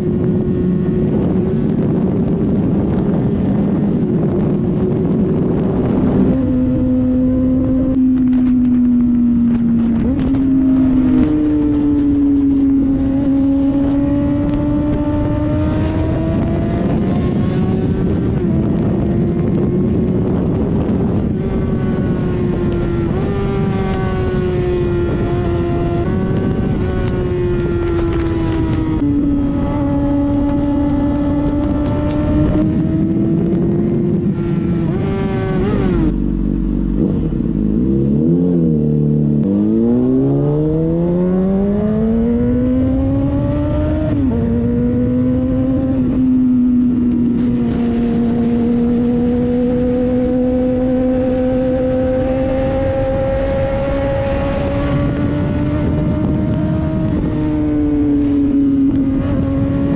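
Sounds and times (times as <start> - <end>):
motorcycle engine accelerating: 0.0 - 59.9
wind noise on microphone: 0.0 - 59.9.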